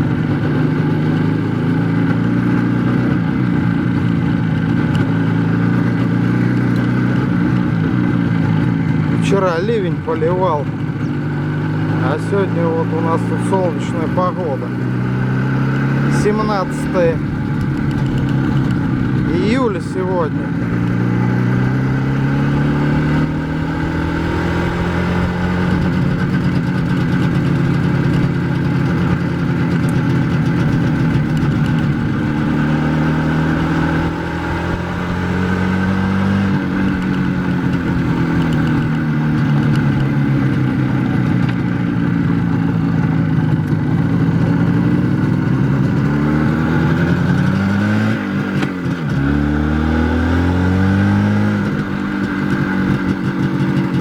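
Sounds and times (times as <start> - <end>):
two-stroke motorcycle engine: 0.0 - 54.0.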